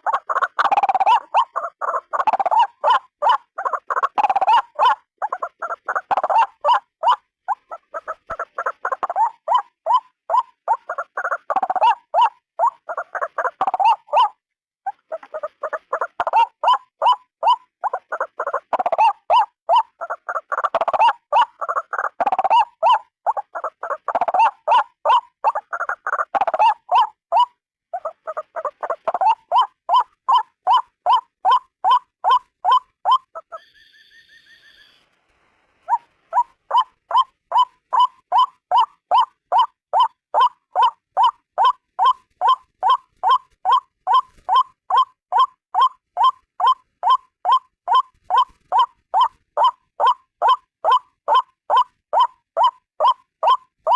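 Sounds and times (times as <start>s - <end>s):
bird harsh repeated calls: 0.0s - 35.1s, 35.8s - 53.9s
high steady tone: 33.5s - 35.2s.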